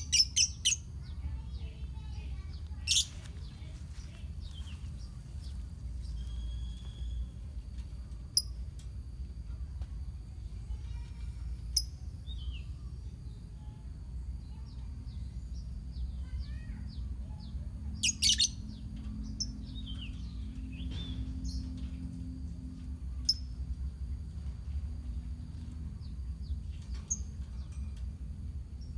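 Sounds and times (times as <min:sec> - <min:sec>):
lovebirds chirping: 0:00.0 - 0:07.4, 0:16.2 - 0:22.0.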